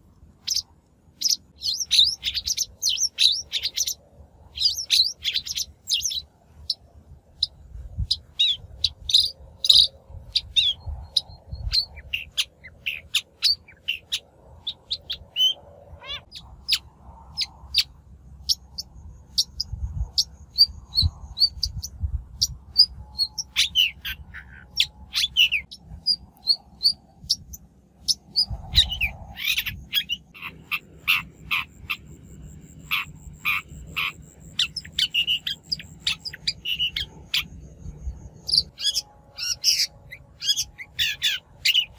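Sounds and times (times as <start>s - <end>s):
shrike calling: 18.5s - 41.9s.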